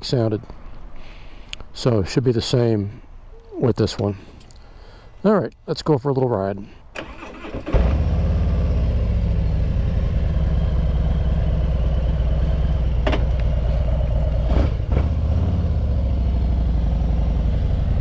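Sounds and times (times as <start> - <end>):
motorcycle engine idling: 8.0 - 14.5.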